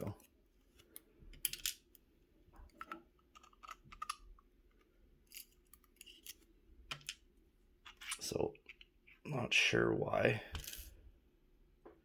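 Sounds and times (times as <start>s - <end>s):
small metallic clicks and scrapes: 2.7s - 4.3s, 5.2s - 7.2s.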